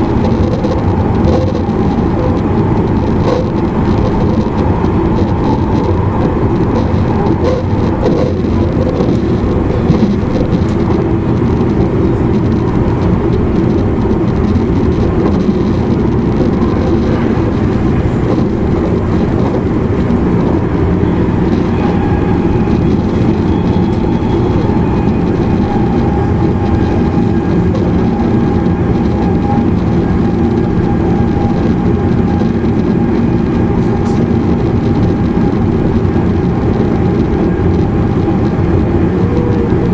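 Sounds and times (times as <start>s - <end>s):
train wheels rumbling on rail: 0.0s - 39.9s
steady tone: 15.4s - 30.4s.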